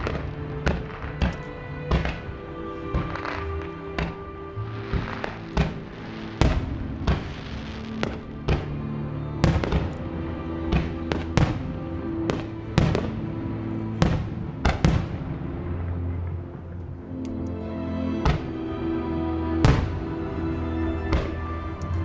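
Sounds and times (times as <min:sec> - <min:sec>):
fireworks bursting with echo: 0:00.0 - 0:09.9, 0:10.7 - 0:13.2, 0:14.0 - 0:16.3, 0:19.6 - 0:20.2
background music: 0:00.0 - 0:22.0.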